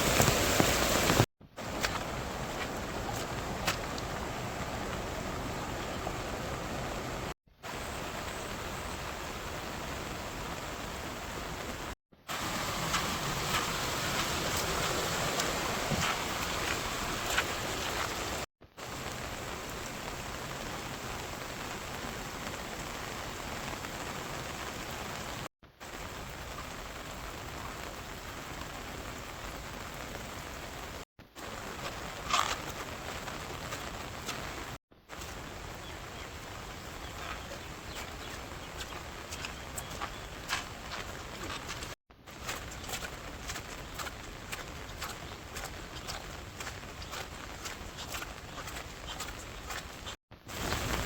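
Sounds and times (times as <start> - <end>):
steady rain falling: 0.0 - 51.0
raindrops ticking: 31.5 - 51.0.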